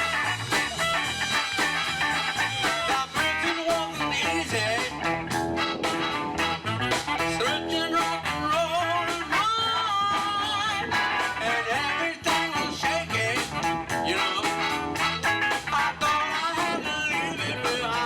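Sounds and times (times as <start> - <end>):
drum beat: 0.0 - 7.4
bending wavering guitar line: 0.0 - 18.0
electric guitar: 0.0 - 18.0
person singing: 2.6 - 5.2, 7.3 - 14.9, 15.5 - 18.0.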